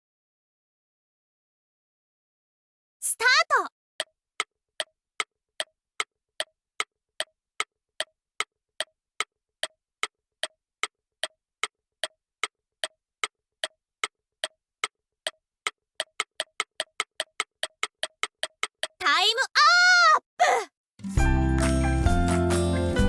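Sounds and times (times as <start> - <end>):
countdown timer ticks: 16.0 - 19.0.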